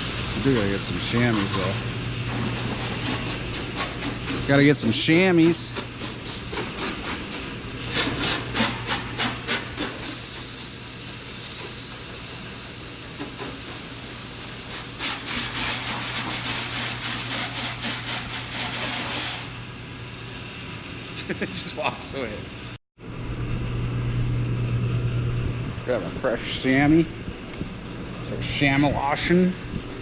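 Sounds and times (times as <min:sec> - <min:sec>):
steady hiss: 0:00.0 - 0:19.4
low electrical hum: 0:13.9 - 0:30.0.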